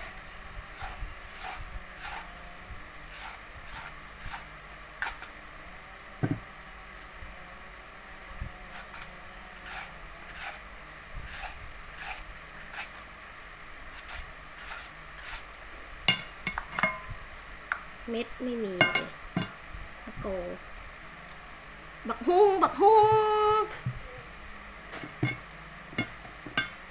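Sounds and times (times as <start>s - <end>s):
papaya shredder scraping: 0.0s - 2.4s, 3.0s - 5.4s, 8.6s - 10.6s, 11.2s - 13.1s, 13.9s - 15.5s
low thump: 6.2s - 6.4s.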